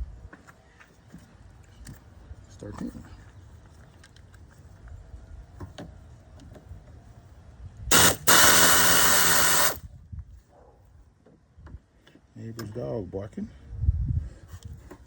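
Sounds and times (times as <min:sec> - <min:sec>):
cordless power tool spinning: 0:07.9 - 0:09.8.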